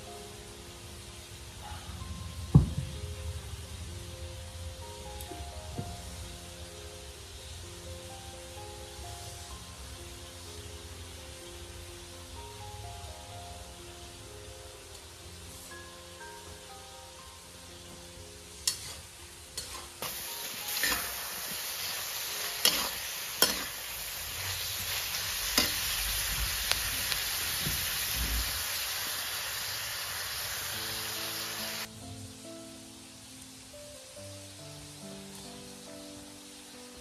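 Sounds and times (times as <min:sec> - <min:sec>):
meat and peppers sizzling in a wok: 0:00.0 - 0:37.0
soft background music: 0:00.0 - 0:37.0
metal spatula scraping a pan: 0:18.6 - 0:21.6, 0:22.4 - 0:24.8.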